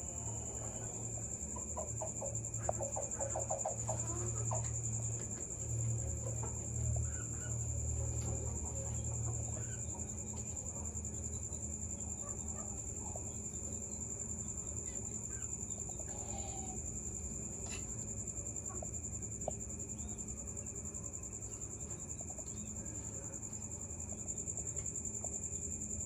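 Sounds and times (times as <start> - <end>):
cricket-like insect trill: 0.0 - 26.0
faint bird chirps: 12.2 - 16.9.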